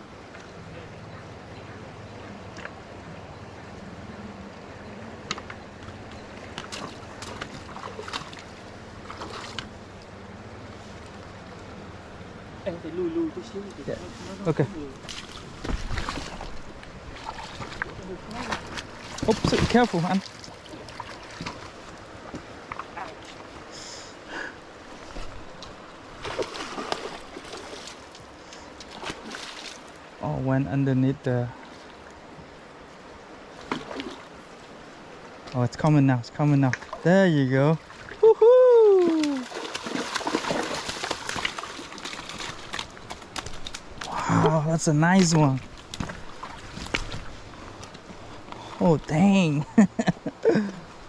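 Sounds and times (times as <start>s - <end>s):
creek water flowing: 0.0s - 51.0s
short sharp splashes: 15.1s - 21.7s, 26.2s - 28.0s, 39.0s - 44.2s.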